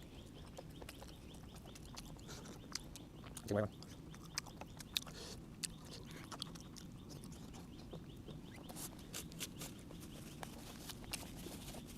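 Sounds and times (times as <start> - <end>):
low steady hum: 0.0 - 11.9
person chewing: 0.0 - 11.9
wet mouth clicks and smacks: 0.4 - 7.7.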